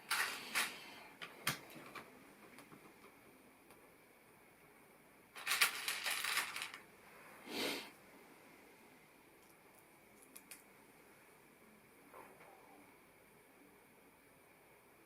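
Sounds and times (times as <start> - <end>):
plastic bricks clattering: 0.1 - 0.8, 5.4 - 6.8.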